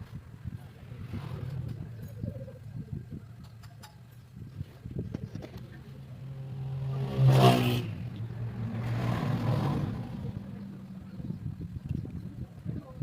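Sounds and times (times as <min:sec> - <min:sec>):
motorcycle engine revving: 0:05.4 - 0:12.0.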